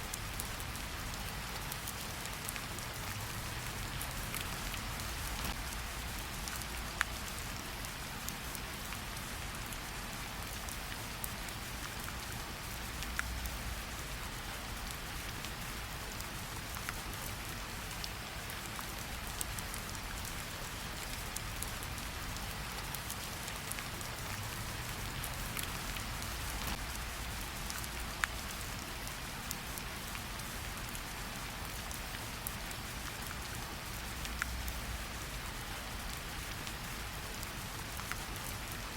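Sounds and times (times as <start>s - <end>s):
gentle rain on tree leaves: 0.0s - 38.9s.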